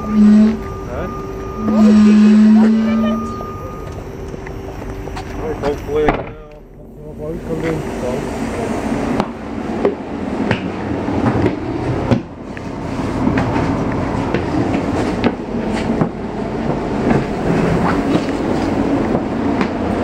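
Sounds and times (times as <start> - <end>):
electric train running noise: 0.0 - 20.0.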